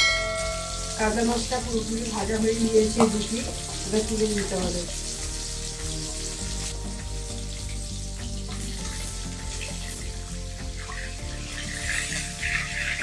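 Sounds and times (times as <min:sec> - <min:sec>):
fish sizzling in hot oil: 0:00.0 - 0:13.0
soft background music: 0:00.0 - 0:13.0.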